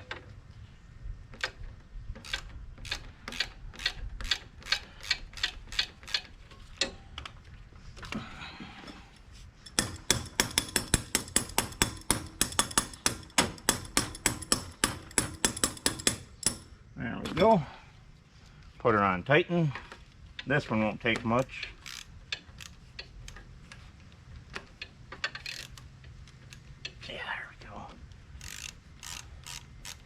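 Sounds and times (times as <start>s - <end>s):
socket ratchet clicking: 2.2s - 6.9s, 9.6s - 16.8s, 21.8s - 23.5s, 24.8s - 27.0s, 28.4s - 30.0s.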